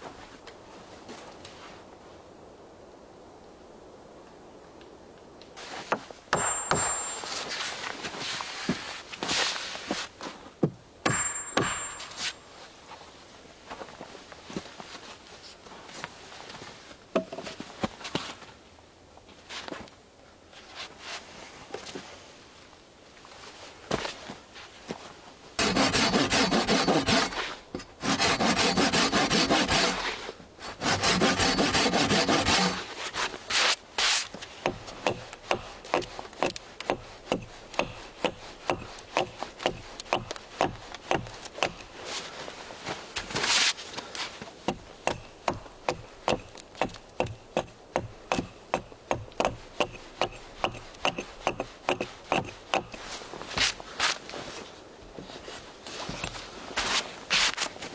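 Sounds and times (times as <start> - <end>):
hand tool cutting wood: 10.6 - 12.4, 25.6 - 42.3, 43.2 - 54.3, 56.0 - 57.8.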